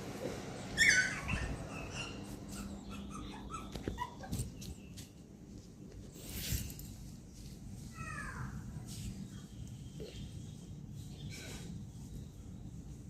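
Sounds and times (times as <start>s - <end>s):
puppy whimpering: 0.8s - 4.5s.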